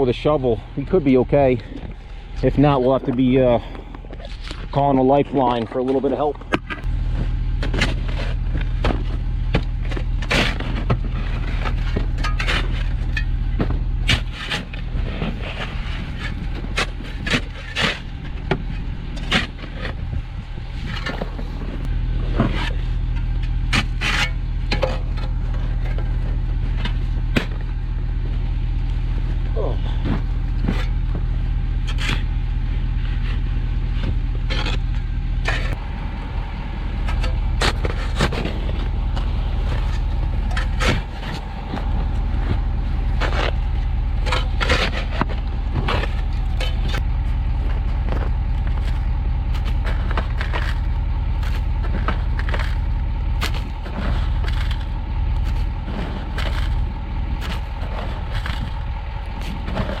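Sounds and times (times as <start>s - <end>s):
truck engine idling: 0.0s - 60.0s
shovel scraping snow and mud: 10.2s - 18.4s, 37.6s - 60.0s.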